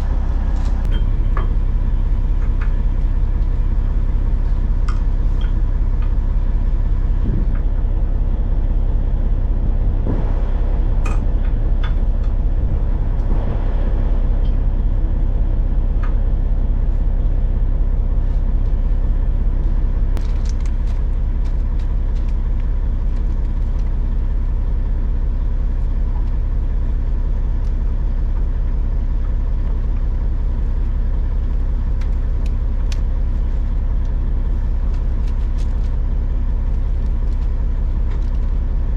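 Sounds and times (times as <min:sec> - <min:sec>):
diesel engine rumbling: 0:00.0 - 0:38.9.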